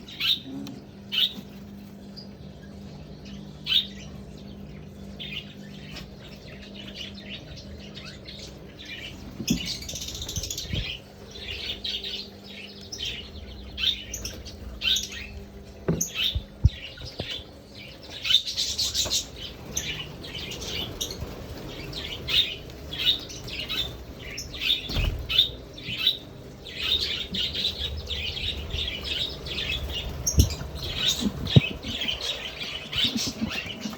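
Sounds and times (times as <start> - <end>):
budgerigars chirping and squawking: 0.0 - 33.9
low steady hum: 0.0 - 33.9.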